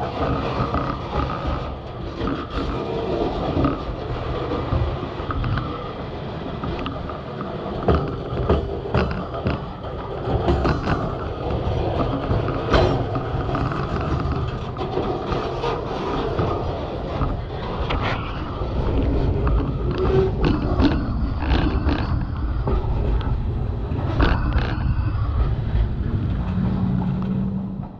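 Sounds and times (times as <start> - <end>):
freight train low rumble: 0.0 - 27.9.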